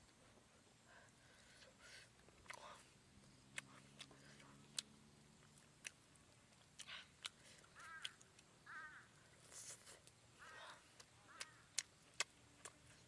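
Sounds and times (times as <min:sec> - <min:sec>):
wet chewing clicks and smacks: 0:02.2 - 0:08.6, 0:10.8 - 0:13.0.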